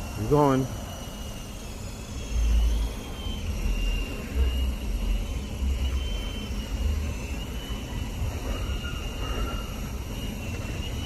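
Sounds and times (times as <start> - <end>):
toy helicopter motor whining: 0.0 - 11.0.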